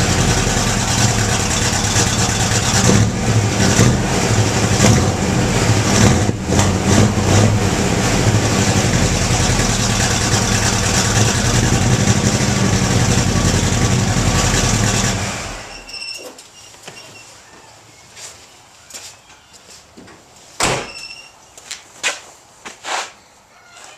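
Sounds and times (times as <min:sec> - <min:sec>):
car engine revving and idling: 0:00.0 - 0:15.7.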